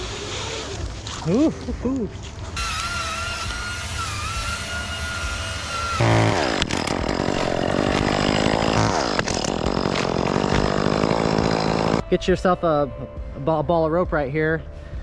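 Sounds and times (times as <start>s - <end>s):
chainsaw cutting wood: 2.6s - 12.0s.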